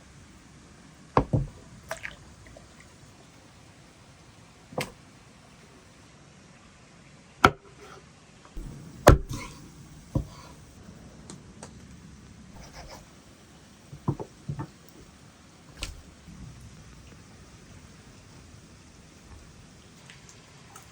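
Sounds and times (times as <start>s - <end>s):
sharp knocks on wood: 8.6s - 10.4s, 13.9s - 14.7s.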